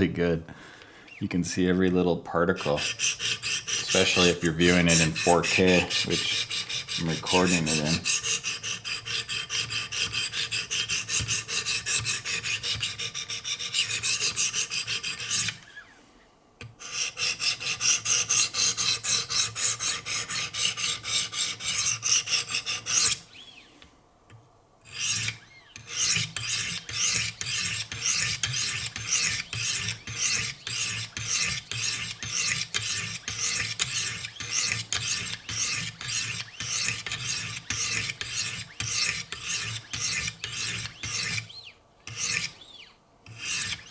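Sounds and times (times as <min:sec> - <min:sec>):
sharpening stones rasping on knife: 0:02.6 - 0:15.6, 0:24.9 - 0:41.5, 0:42.1 - 0:42.6, 0:43.3 - 0:43.8.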